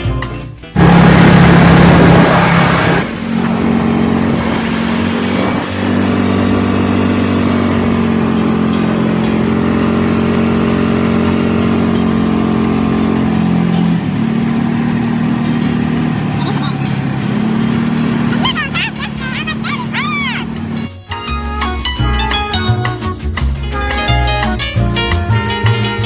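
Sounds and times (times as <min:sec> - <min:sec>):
vehicle engine droning: 0:00.8 - 0:20.9.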